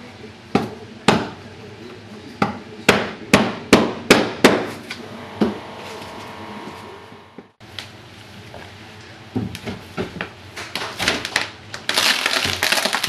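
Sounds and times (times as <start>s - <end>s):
hammer blows on floor: 5.0s - 7.6s.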